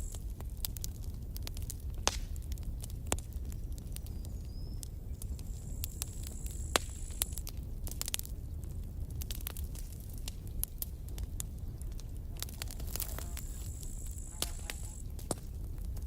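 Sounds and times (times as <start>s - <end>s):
wood campfire crackling: 0.0s - 16.0s.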